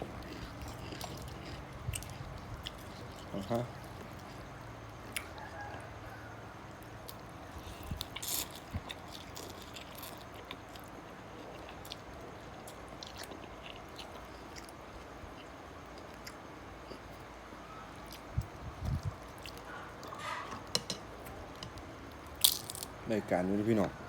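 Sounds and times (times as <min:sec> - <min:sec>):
person chewing noodles: 0:00.0 - 0:05.8, 0:07.1 - 0:17.2
steady background hiss: 0:00.0 - 0:24.0.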